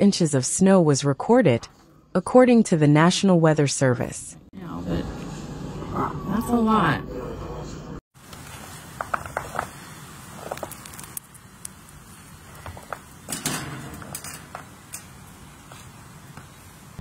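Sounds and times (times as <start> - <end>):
faint outdoor background noise: 8.2 - 17.0
light clicks and crackles: 10.4 - 16.5.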